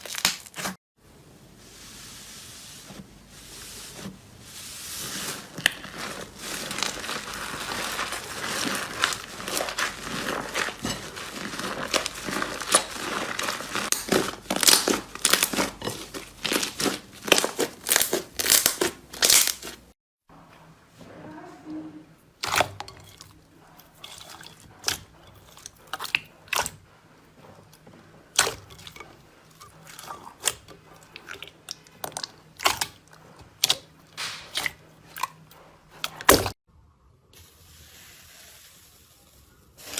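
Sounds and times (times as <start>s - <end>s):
slime crackling and crunching: 0.0s - 0.8s, 4.7s - 19.9s.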